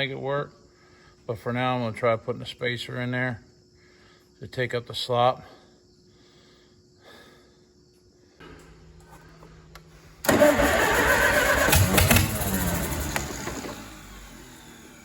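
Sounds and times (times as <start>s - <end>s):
faint steady hum: 0.0s - 11.5s
engine starting and running: 8.4s - 15.0s.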